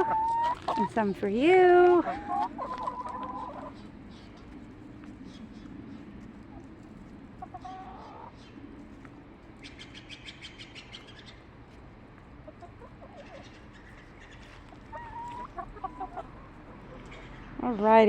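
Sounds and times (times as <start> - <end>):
hens clucking: 0.0 - 18.0
songbird chirping trill: 9.6 - 11.5.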